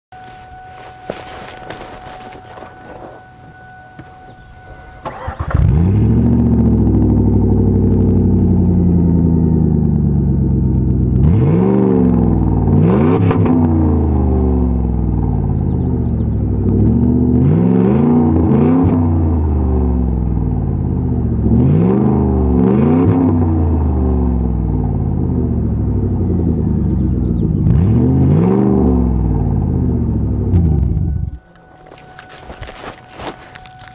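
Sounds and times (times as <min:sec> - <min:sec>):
loud car engine revving: 0:05.0 - 0:31.4.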